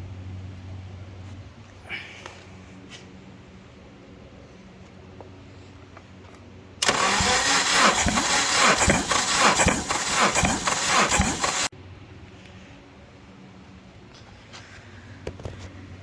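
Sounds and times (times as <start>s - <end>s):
engine cranking on starter: 6.8s - 11.7s.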